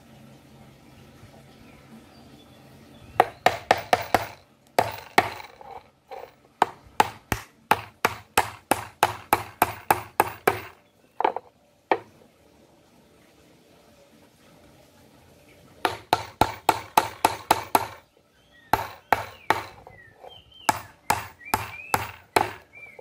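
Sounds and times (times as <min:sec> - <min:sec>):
hammer driving nails into wood: 0:03.2 - 0:12.0, 0:15.9 - 0:18.0, 0:18.8 - 0:19.9, 0:20.7 - 0:22.7.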